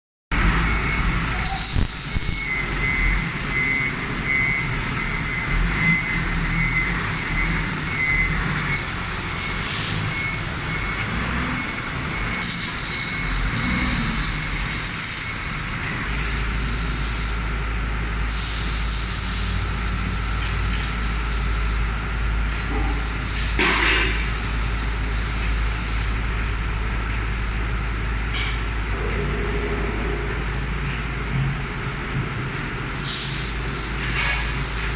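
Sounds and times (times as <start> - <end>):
high whine: 0.3 - 17.6, 23.6 - 34.9
heavy vehicle engines running: 0.3 - 34.9.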